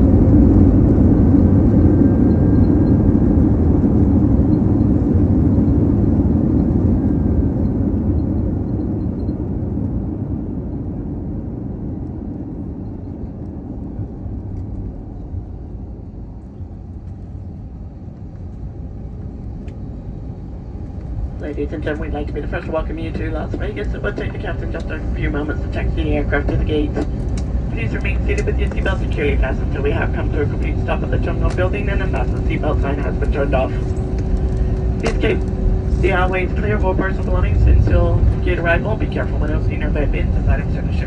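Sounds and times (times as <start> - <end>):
jet engine roar: 0.0 - 41.0
runway rumble: 11.8 - 41.0.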